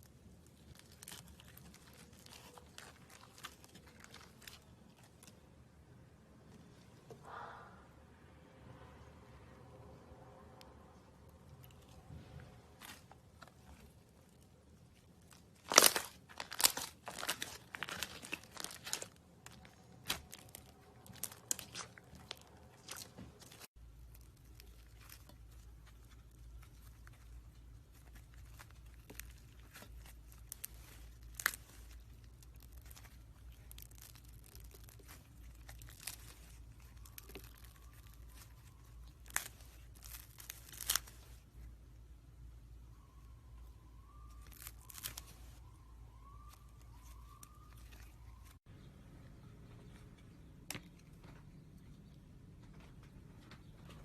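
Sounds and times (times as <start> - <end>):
plastic tearing and crinkling: 0.0 - 5.4, 11.6 - 41.6, 44.1 - 45.6
low hum: 0.8 - 15.5.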